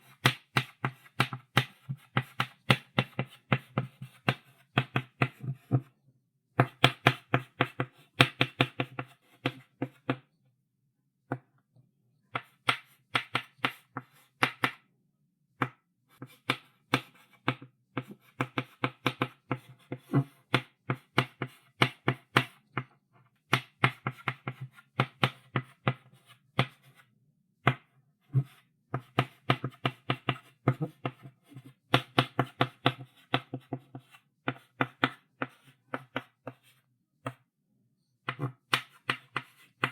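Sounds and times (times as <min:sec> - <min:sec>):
chalk tapping on a blackboard: 0:12.4 - 0:14.8, 0:28.4 - 0:37.4, 0:38.3 - 0:39.9.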